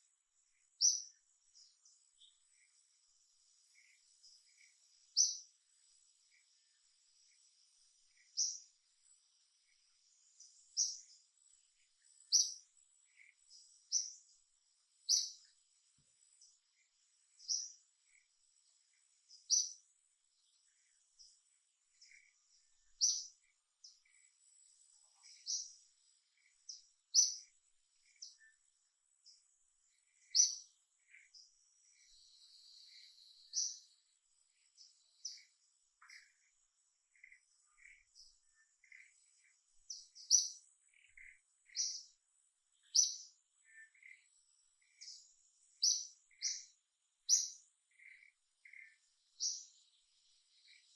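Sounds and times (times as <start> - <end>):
high bird chirps: 22.0 - 24.2, 30.2 - 34.0, 37.1 - 42.1, 42.8 - 50.9.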